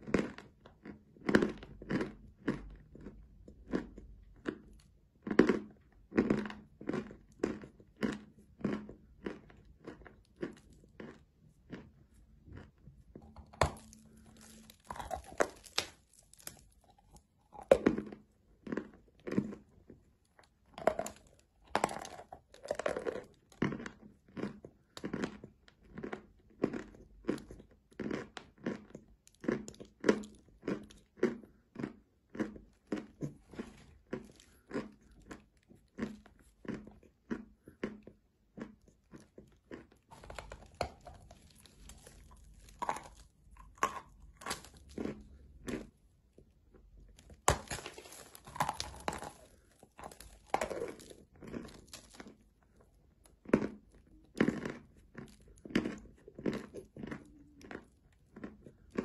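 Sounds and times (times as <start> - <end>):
person crunching chalk: 12.6 - 19.6, 39.7 - 45.9, 47.2 - 52.8.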